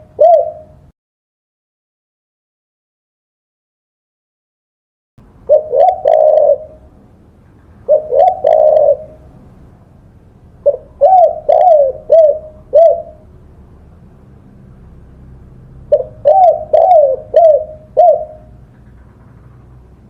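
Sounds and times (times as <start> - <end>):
dove cooing: 0.0 - 0.9, 5.5 - 7.0, 7.8 - 9.5, 10.6 - 13.3, 15.8 - 19.5.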